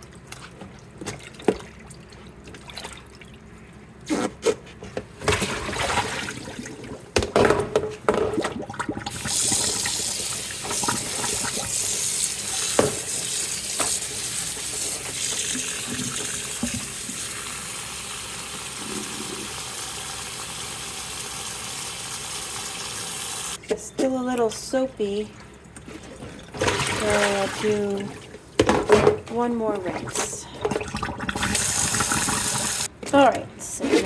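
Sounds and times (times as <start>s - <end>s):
water splashing in a basin: 5.3s - 7.2s, 25.4s - 28.4s, 29.8s - 32.9s
tap running: 7.2s - 17.7s.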